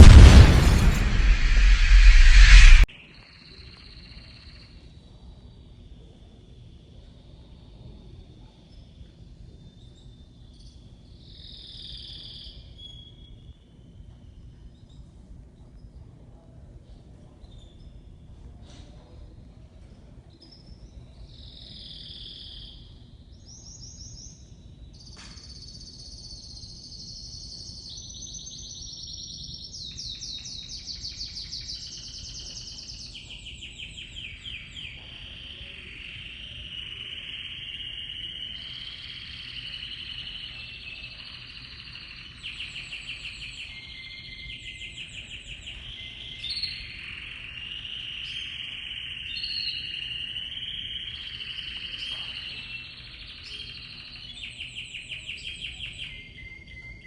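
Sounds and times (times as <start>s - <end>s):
canary singing trills: 25.0s - 57.0s.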